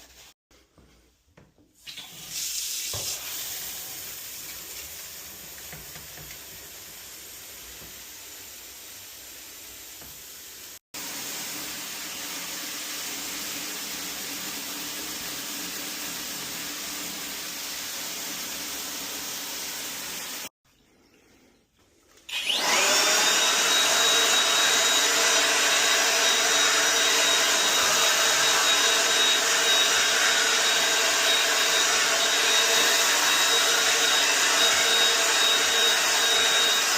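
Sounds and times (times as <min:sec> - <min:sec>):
vacuum cleaner motor whining: 0:22.3 - 0:36.9.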